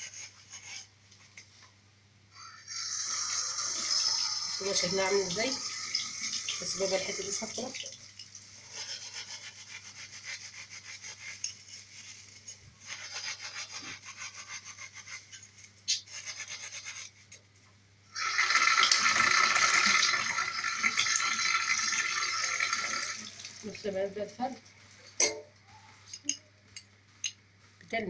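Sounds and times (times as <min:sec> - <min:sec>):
scouring pad scrubbing metal: 0:04.5 - 0:07.8, 0:08.6 - 0:17.2.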